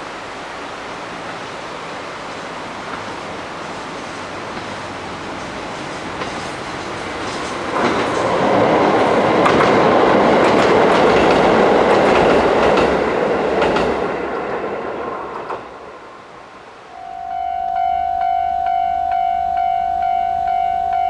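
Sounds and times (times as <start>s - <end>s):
passenger train passing: 0.0s - 21.0s
wheels clicking over rail joints: 4.2s - 14.1s.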